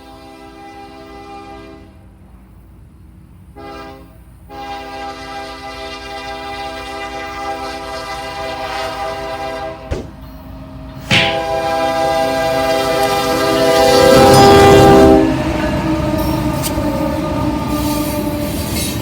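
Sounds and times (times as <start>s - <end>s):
locomotive air horn blasts: 0.0s - 2.0s, 3.6s - 9.9s, 11.0s - 15.6s
low rumble of train: 0.0s - 19.0s.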